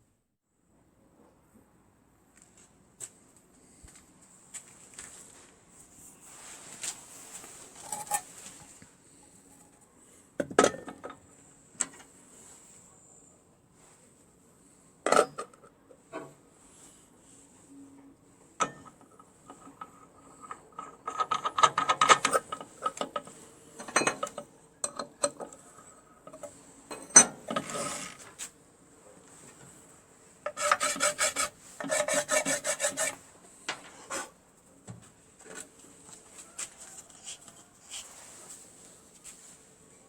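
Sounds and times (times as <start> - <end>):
hand file strokes: 30.5 - 33.2, 36.6 - 38.6.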